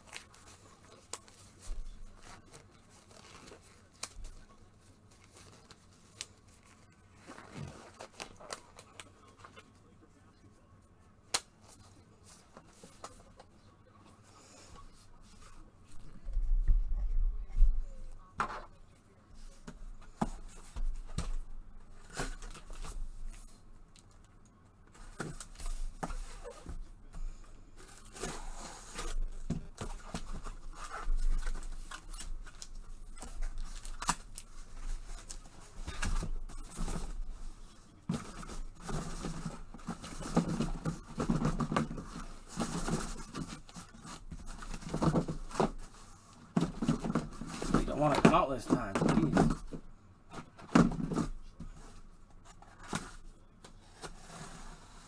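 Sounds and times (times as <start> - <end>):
cardboard boxes clicking and tapping: 24.9 - 54.6
plastic wrap rustling and ripping: 27.8 - 49.8.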